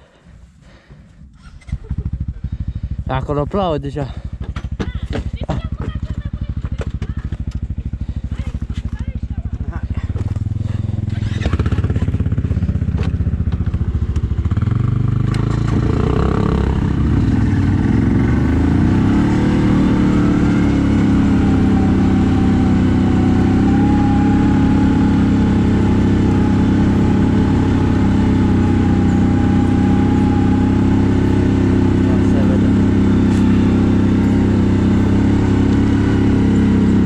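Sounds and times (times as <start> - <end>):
atv engine running: 0.0 - 37.0
high whine: 15.4 - 37.0.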